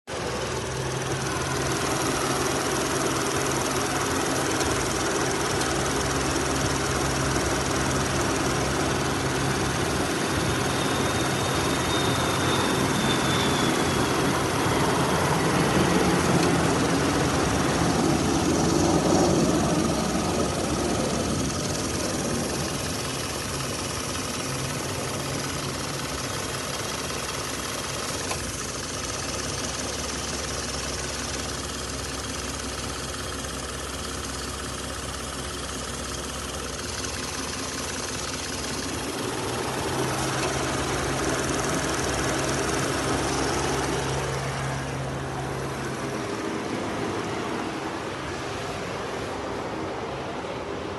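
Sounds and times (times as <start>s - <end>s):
engine running steadily: 0.0s - 50.9s.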